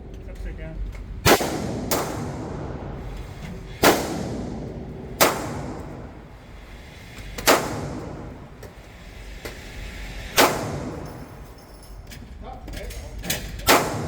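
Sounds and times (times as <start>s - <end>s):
gunshots with echo: 1.2s - 2.9s, 3.8s - 6.2s, 7.4s - 8.3s, 10.4s - 11.1s, 13.7s - 14.0s.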